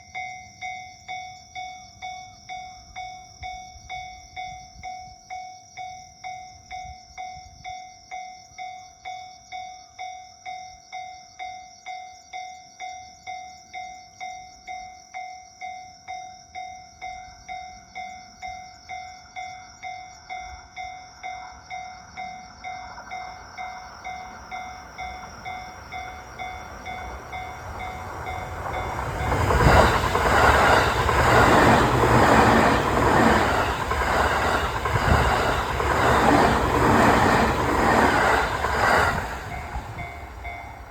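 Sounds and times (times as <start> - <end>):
electric train rumble: 16.5 - 40.9.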